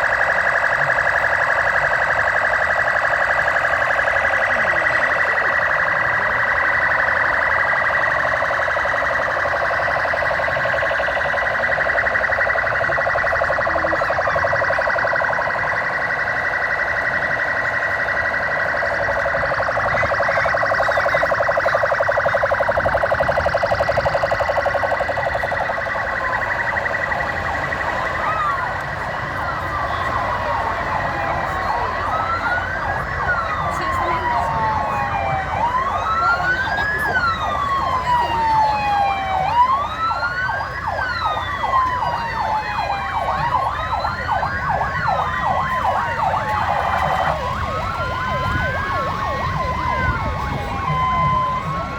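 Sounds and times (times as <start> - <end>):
police sirens wailing: 0.0 - 51.9.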